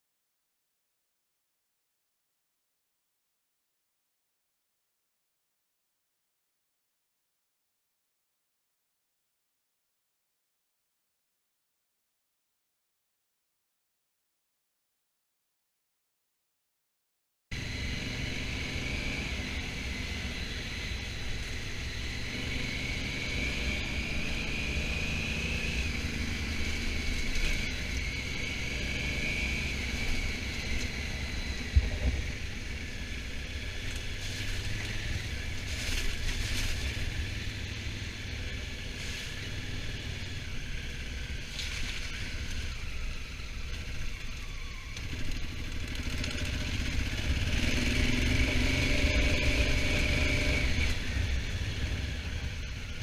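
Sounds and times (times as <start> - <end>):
motorcycle engine rumble: 17.7 - 53.0.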